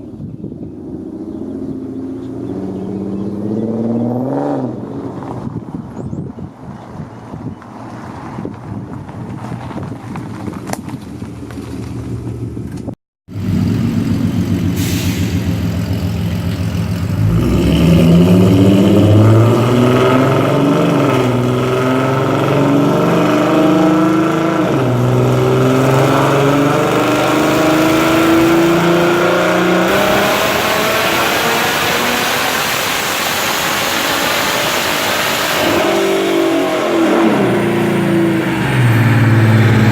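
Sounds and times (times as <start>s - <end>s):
wind noise on microphone: 0.0s - 11.7s
loud car exhaust under load: 0.0s - 39.9s.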